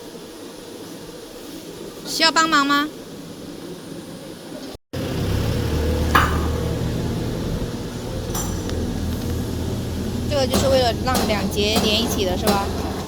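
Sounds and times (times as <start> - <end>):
low machinery hum: 5.0 - 13.0
short sharp knocks: 6.1 - 7.0.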